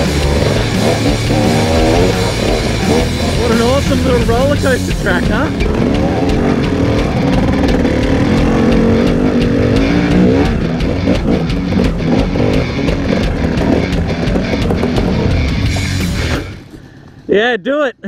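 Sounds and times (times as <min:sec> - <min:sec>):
sharp knocks and ticks: 0:00.0 - 0:16.9
motorbike engine revving: 0:00.0 - 0:17.3.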